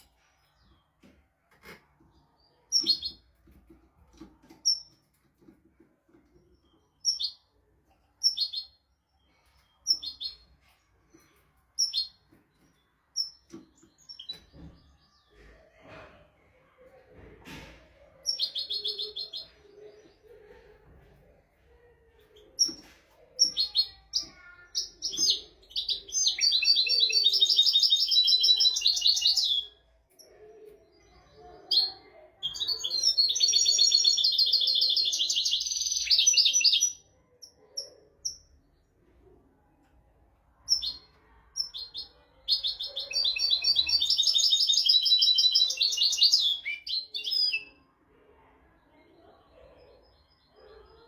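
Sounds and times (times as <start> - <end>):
bird twittering song: 6.4 - 7.5, 8.2 - 10.5, 22.4 - 31.8, 32.5 - 38.8, 40.7 - 47.9.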